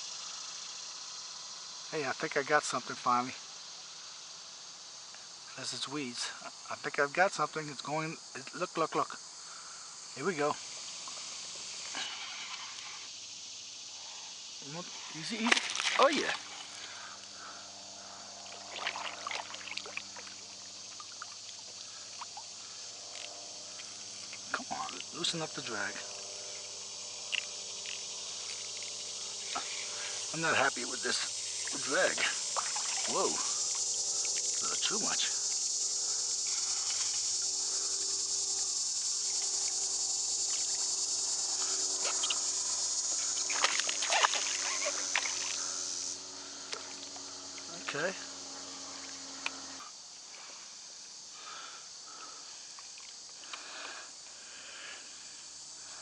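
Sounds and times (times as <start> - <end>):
insects chorus: 0.0 - 56.0
water splashing and trickling: 14.7 - 17.1, 18.5 - 22.5, 27.2 - 34.9, 43.2 - 45.8
sharp splashing or knocking: 43.5 - 45.6.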